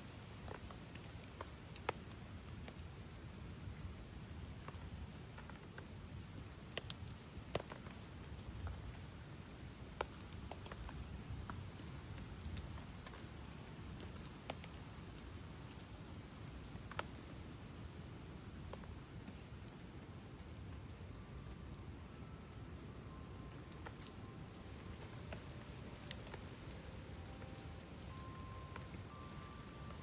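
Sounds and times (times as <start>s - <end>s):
campfire crackling: 0.0s - 30.0s
steady rain: 0.0s - 30.0s.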